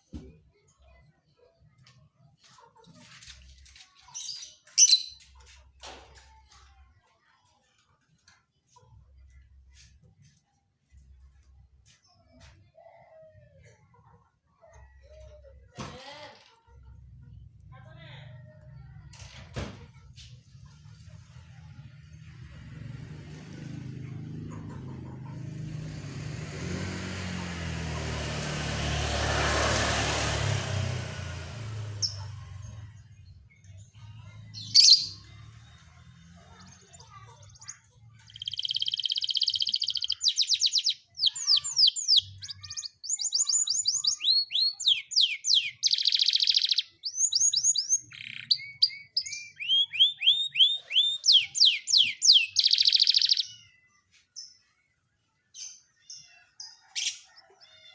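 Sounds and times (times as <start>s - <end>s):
canary singing trills: 4.1s - 5.4s, 36.4s - 54.6s.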